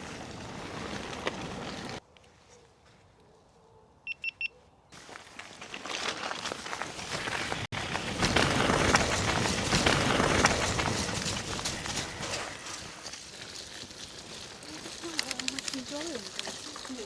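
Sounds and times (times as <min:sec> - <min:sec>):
bike tyres and wind rushing: 0:00.0 - 0:02.0, 0:05.0 - 0:17.0
bike rattling clicks: 0:07.8 - 0:17.0.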